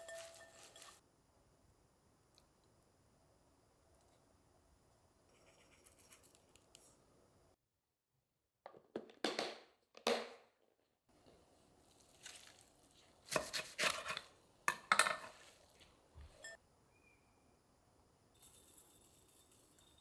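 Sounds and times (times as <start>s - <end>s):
knife cutting crisp vegetables: 13.2s - 14.3s.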